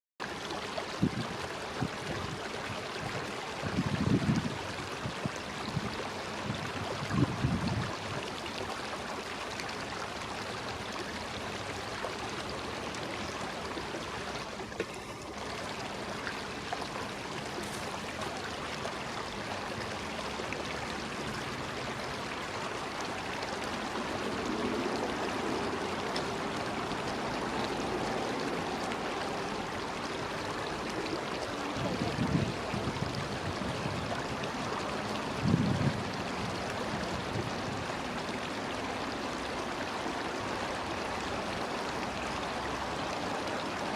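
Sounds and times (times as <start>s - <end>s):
stream water flowing: 0.2s - 43.9s.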